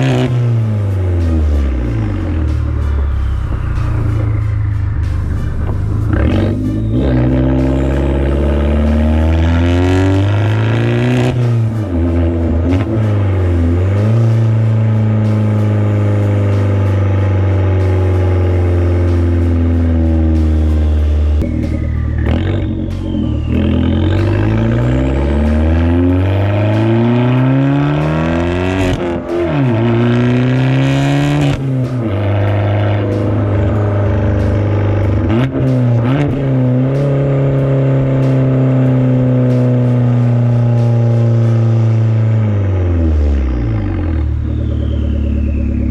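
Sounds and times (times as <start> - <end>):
car engine accelerating through gears: 0.0 - 45.9.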